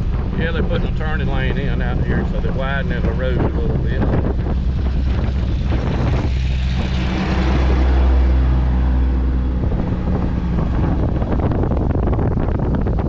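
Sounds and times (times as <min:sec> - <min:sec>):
low engine drone: 0:00.0 - 0:13.0
vehicle engine and road noise: 0:00.0 - 0:13.0
wind buffeting microphone: 0:00.0 - 0:13.0.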